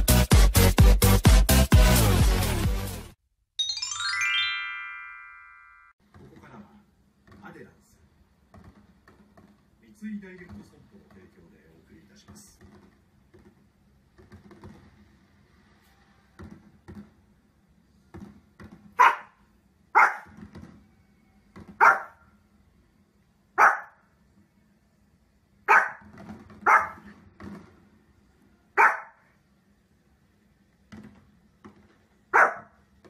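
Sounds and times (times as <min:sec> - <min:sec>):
dog barking: 0:19.0 - 0:20.3, 0:21.8 - 0:22.3, 0:23.6 - 0:24.0, 0:25.7 - 0:27.1, 0:28.8 - 0:29.3, 0:32.3 - 0:32.8.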